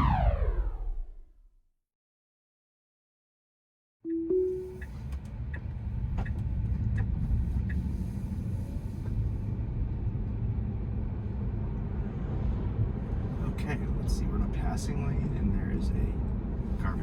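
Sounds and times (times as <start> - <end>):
short chime tone: 4.1 - 5.0
road and tyre rumble in car: 4.8 - 17.0.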